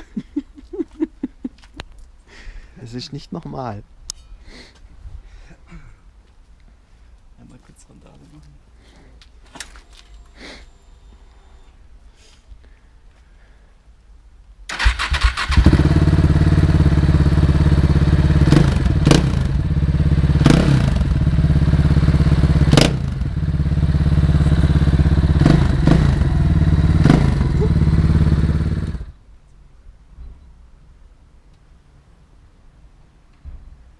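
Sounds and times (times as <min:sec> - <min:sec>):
motorcycle engine with throttle blips: 0:15.6 - 0:29.2.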